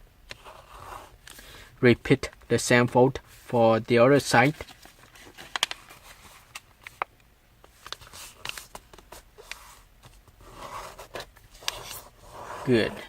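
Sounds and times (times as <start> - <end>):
paper being folded and creased: 4.2 - 7.1, 7.7 - 13.0.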